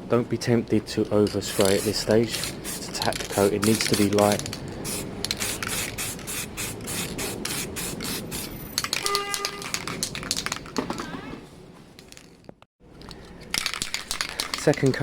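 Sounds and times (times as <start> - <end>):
spray paint can hissing: 1.4 - 10.0.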